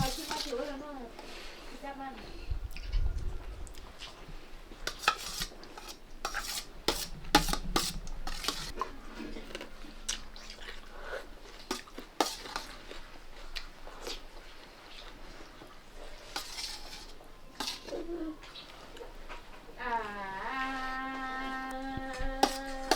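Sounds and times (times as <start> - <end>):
spoons clinking on plates: 0.0 - 0.5, 4.9 - 8.8, 11.7 - 12.9, 16.3 - 18.0, 22.4 - 22.9.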